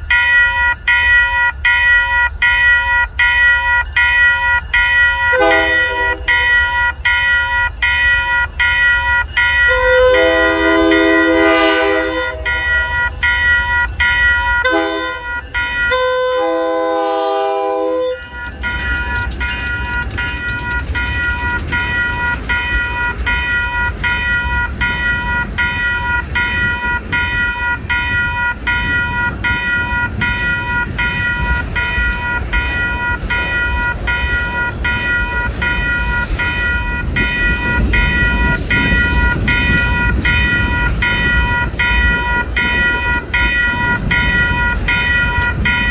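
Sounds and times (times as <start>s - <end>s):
crossing bell ringing: 0.0s - 45.9s
locomotive air horn blasts: 5.3s - 6.6s, 9.7s - 13.1s, 14.6s - 18.3s
freight cars rumbling: 17.8s - 45.9s.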